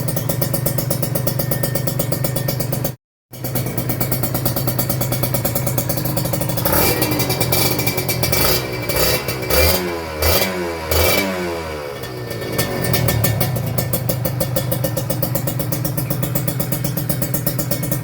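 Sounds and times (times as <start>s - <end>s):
motorcycle engine idling: 0.0s - 18.0s
throttle blips revving: 6.4s - 11.4s.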